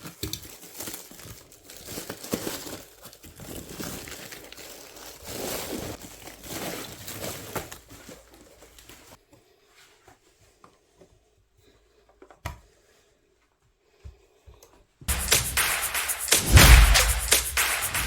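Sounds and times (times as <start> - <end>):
packaging crinkling: 0.2 - 7.7
sharp knock: 15.1 - 18.0.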